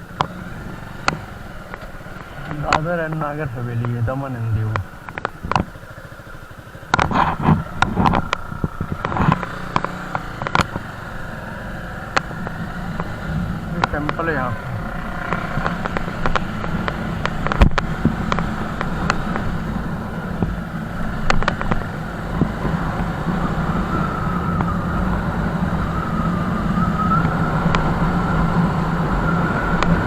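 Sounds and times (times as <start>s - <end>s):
vehicle engine and road rumble: 0.0s - 30.0s
wavering whine: 1.5s - 30.0s
sharp clicks: 13.8s - 19.5s.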